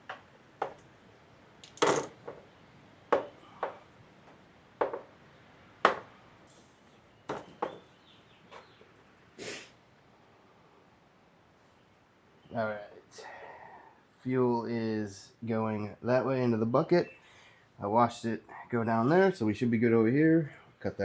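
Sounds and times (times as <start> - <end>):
hand tools clicking and clanking: 1.6 - 2.4.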